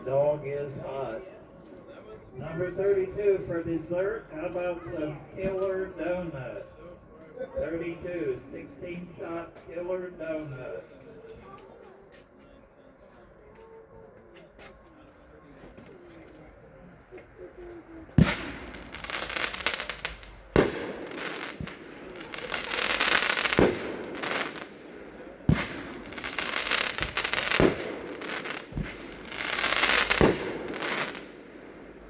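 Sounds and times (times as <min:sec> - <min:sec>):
firework bangs: 0:18.1 - 0:32.0
firework crackling: 0:18.1 - 0:32.0.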